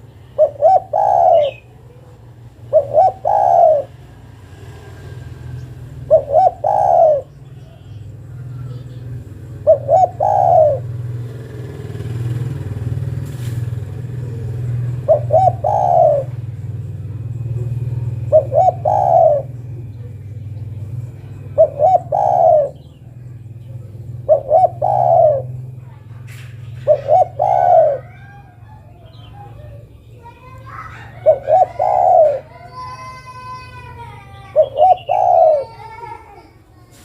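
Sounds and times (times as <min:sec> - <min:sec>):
dove cooing: 0:00.0 - 0:04.3, 0:05.8 - 0:13.0, 0:13.7 - 0:36.5
steady low hum: 0:13.3 - 0:32.7.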